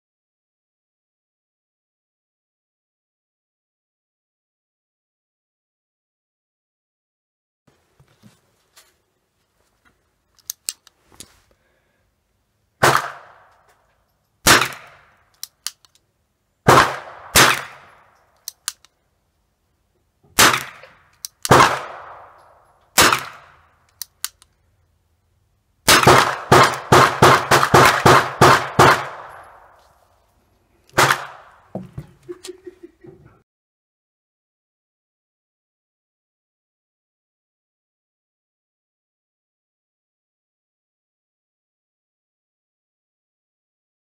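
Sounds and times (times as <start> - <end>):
gunshots: 12.8 - 13.5, 14.4 - 15.2, 16.6 - 18.1, 20.4 - 22.4, 23.0 - 23.6, 25.9 - 29.8, 31.0 - 31.6.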